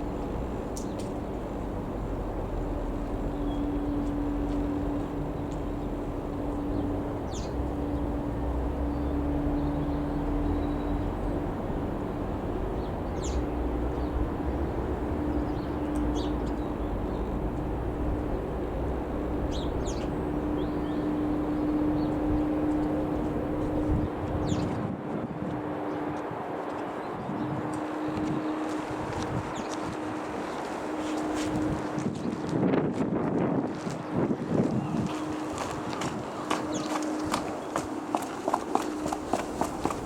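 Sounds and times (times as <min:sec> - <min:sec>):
engine drone: 0:00.0 - 0:32.8, 0:34.4 - 0:40.0
small birds chirping: 0:02.7 - 0:08.1, 0:12.7 - 0:14.3, 0:15.3 - 0:17.4, 0:19.4 - 0:23.0.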